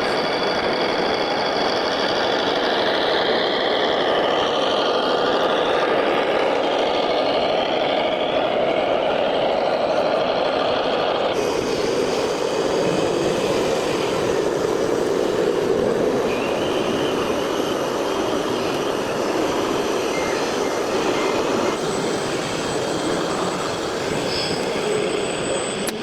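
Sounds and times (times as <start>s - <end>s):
faint high whine: 11.4s - 26.0s
mechanical running noise: 11.4s - 26.0s.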